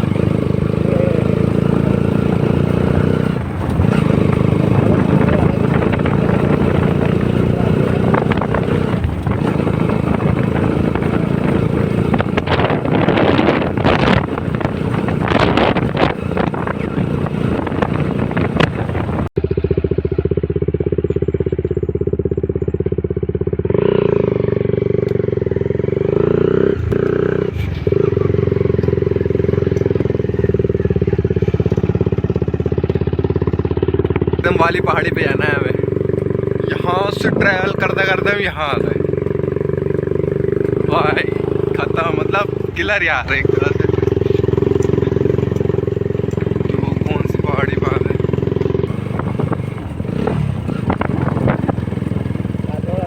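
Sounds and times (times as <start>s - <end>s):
wind noise on microphone: 0.0s - 19.3s, 43.7s - 53.0s
motorcycle engine running: 0.0s - 53.0s.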